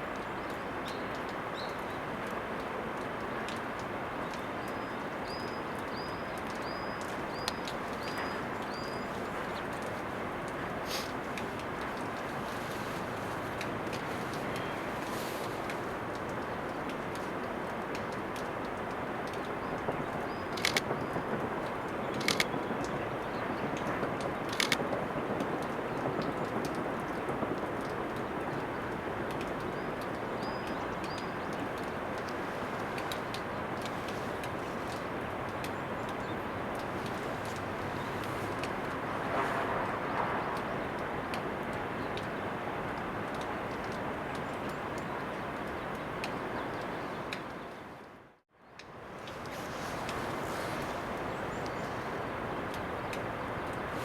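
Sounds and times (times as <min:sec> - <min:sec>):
outdoor background noise: 0:00.0 - 0:54.0
background hiss: 0:05.2 - 0:17.7
sharp clicks: 0:20.5 - 0:21.1, 0:22.1 - 0:22.6, 0:23.8 - 0:24.8.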